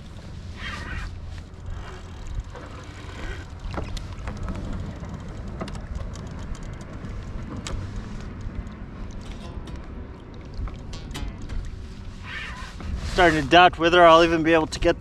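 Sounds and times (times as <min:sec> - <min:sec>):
sharp clicks and knocks: 0:03.7 - 0:11.8.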